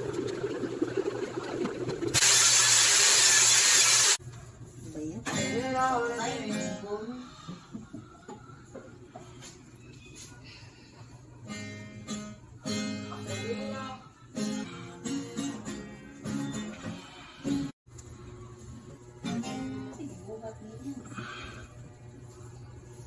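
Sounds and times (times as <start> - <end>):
person singing: 5.3 - 7.6, 13.1 - 17.7
acoustic guitar strumming: 11.5 - 17.7.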